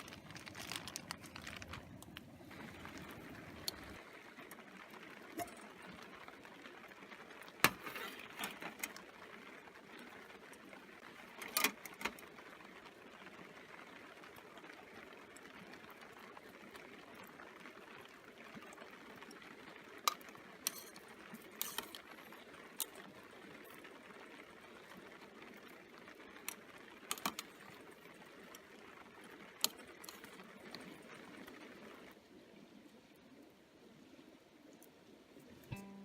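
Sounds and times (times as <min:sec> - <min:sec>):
rain hissing: 0:00.0 - 0:06.8.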